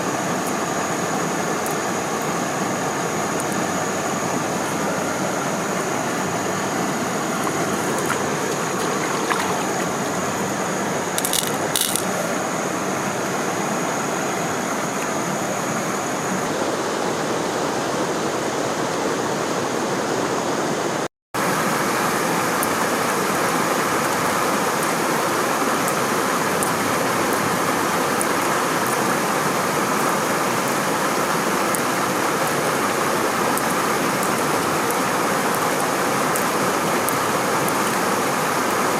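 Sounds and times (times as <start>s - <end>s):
stream water rushing: 0.0s - 38.9s
sharp clicks: 11.2s - 12.1s.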